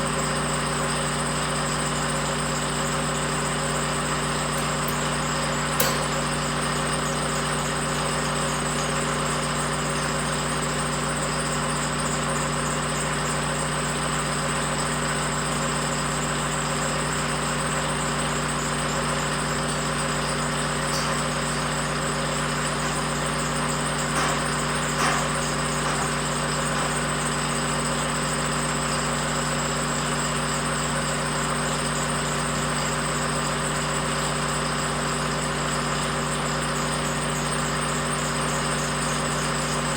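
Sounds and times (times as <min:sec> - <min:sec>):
short clanks: 0:04.5 - 0:06.6, 0:20.9 - 0:21.5, 0:24.0 - 0:27.1
sharp knock: 0:05.8 - 0:06.2.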